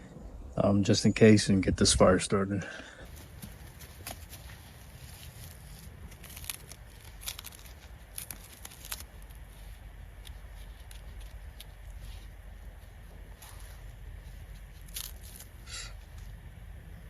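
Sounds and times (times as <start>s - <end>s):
low steady rumble: 0.0s - 17.0s
footsteps snapping in snow: 3.1s - 16.3s.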